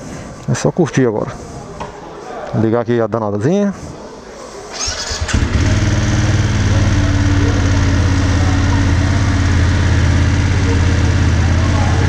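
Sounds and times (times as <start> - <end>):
motorcycle engine starting and idling: 4.7 - 12.0.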